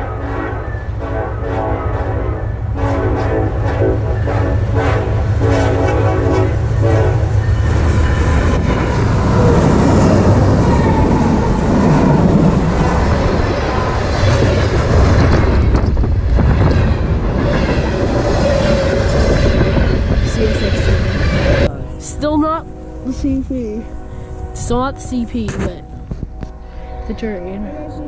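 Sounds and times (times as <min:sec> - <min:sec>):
locomotive horn: 0:00.0 - 0:07.9, 0:18.6 - 0:28.0
train wheels rumbling on rails: 0:00.0 - 0:22.6.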